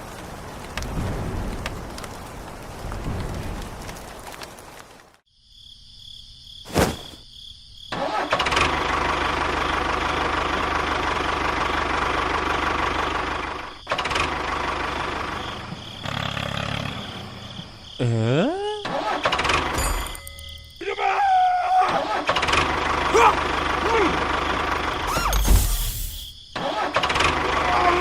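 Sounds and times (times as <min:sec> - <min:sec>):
vehicle engine starting and running: 0:07.9 - 0:17.6, 0:22.1 - 0:25.4, 0:26.6 - 0:27.8.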